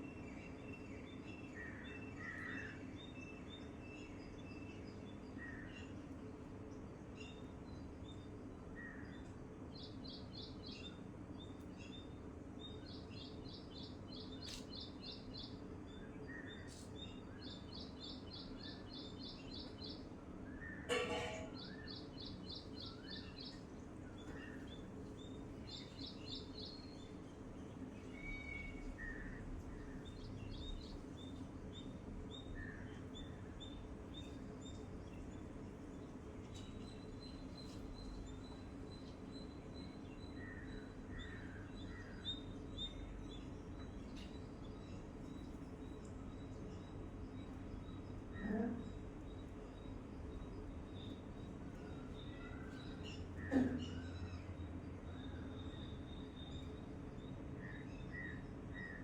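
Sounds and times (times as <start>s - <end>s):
low background hum: 0.0s - 59.0s.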